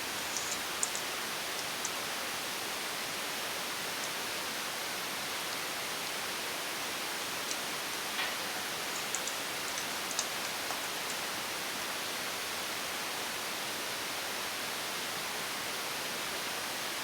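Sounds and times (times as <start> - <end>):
steady hiss: 0.0 - 14.2
light ticks: 0.2 - 2.0, 7.4 - 11.3.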